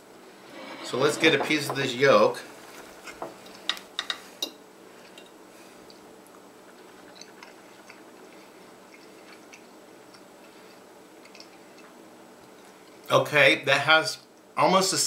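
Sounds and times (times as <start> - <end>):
soft chewing: 5.0 - 13.1.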